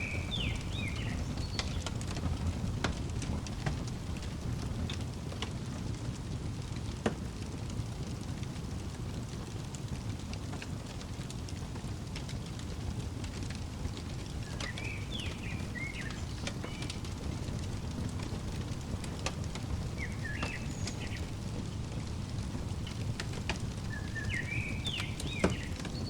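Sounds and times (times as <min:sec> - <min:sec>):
songbird chirping: 0:00.0 - 0:03.9, 0:14.0 - 0:26.0
fire crackling and popping: 0:00.0 - 0:26.0.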